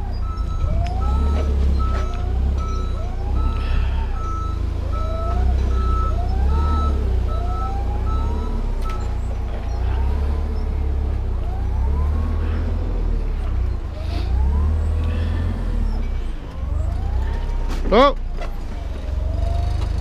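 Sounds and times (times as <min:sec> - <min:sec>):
reversing alarm beeping: 0:00.0 - 0:17.7
engine rumble: 0:00.0 - 0:20.0.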